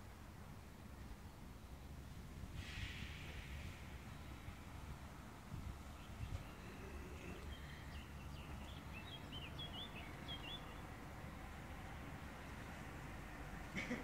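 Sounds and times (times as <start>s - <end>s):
low outdoor rumble: 0.0s - 14.0s
small songbird chirping: 2.8s - 12.8s.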